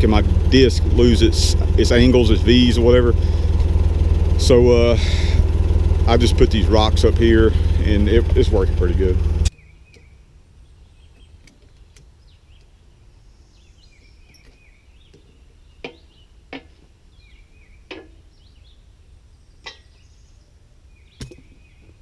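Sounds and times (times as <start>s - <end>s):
low steady rumble: 0.0s - 11.4s
small birds chirping: 6.3s - 22.0s.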